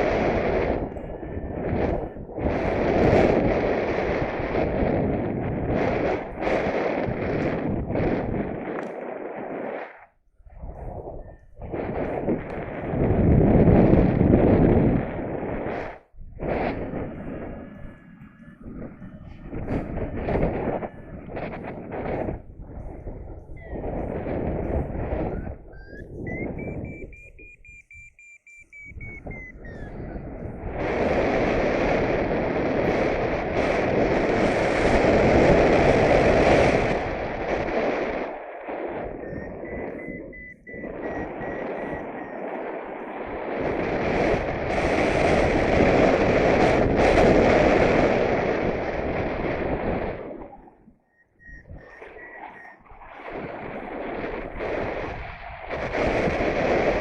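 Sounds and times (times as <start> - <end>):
thin steady electronic tone: 0.0 - 2.8, 17.4 - 30.6, 38.9 - 43.0, 51.0 - 53.1
wind buffeting microphone: 0.0 - 57.0.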